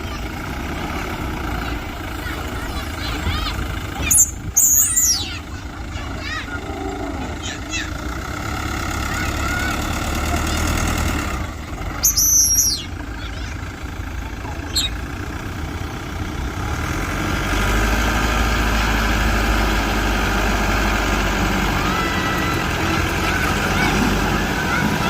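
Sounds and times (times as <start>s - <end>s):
bulldozer diesel engine running: 0.0s - 25.0s.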